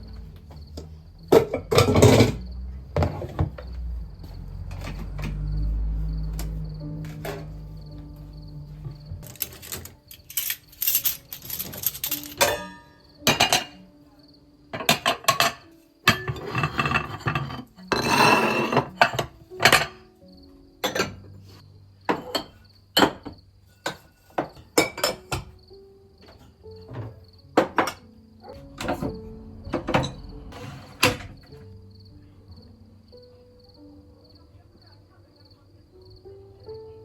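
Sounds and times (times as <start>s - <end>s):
dishes and cutlery clinking: 1.3s - 2.4s, 9.2s - 13.8s, 14.7s - 20.1s, 20.8s - 25.6s, 26.2s - 31.6s.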